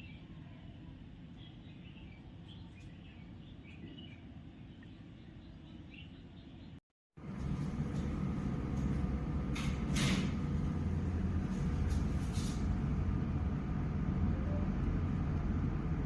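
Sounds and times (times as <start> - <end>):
large vehicle rumbling: 7.2 - 16.0.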